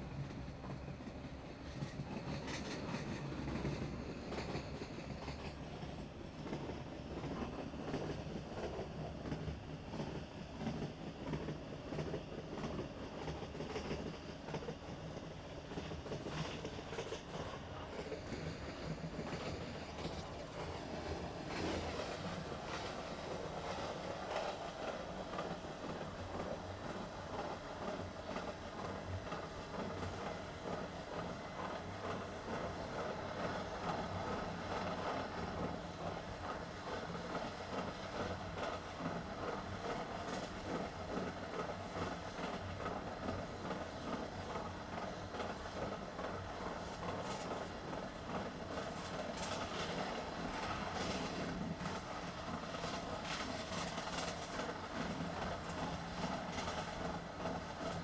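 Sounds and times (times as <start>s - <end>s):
train rumbling on track: 0.0s - 58.0s
faint clatter: 0.2s - 58.0s.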